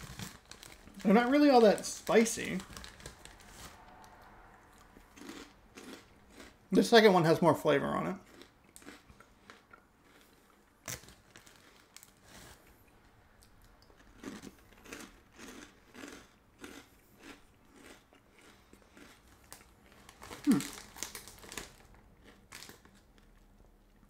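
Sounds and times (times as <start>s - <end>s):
foil snack bag crinkling: 0.0s - 3.8s, 10.8s - 12.6s, 19.3s - 23.5s
corn puffs crunching: 0.0s - 4.2s, 4.8s - 7.4s, 8.0s - 12.9s, 13.8s - 23.5s
chewing: 4.0s - 6.6s, 8.2s - 24.0s.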